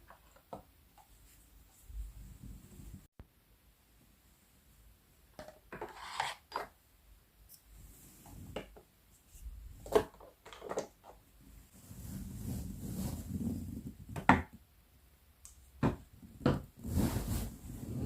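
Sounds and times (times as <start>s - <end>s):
brief scraping or rubbing: 16.8s - 18.0s.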